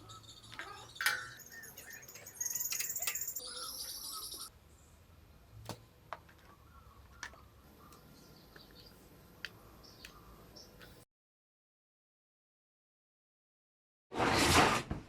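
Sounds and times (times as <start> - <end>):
bird chirping: 0.0 - 5.0, 6.4 - 11.0.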